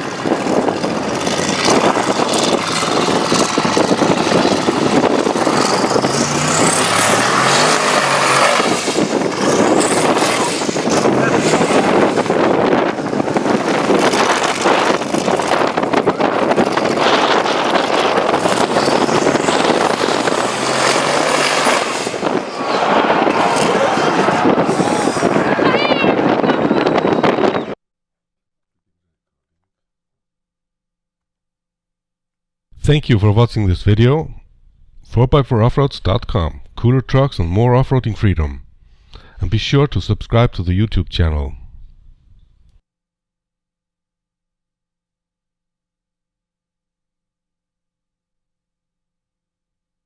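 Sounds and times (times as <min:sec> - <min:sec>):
truck engine revving high: 0:00.0 - 0:27.8.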